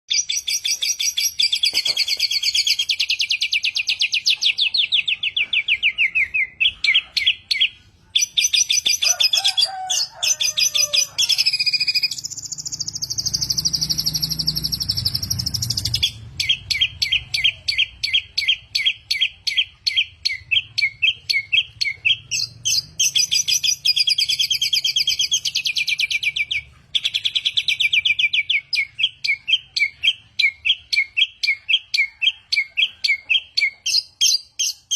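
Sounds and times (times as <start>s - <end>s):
songbird singing chips and trills: 0.1s - 9.2s, 10.4s - 34.9s.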